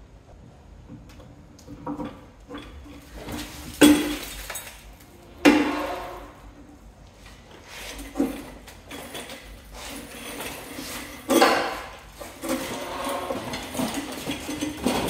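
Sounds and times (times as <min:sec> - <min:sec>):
metal clanks ringing: 0:01.9 - 0:06.5.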